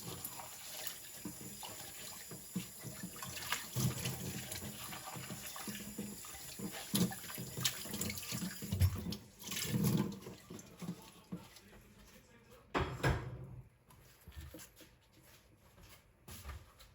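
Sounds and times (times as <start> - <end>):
water running in a sink: 0.0 - 11.8
dishes knocking and clinking: 12.7 - 13.6.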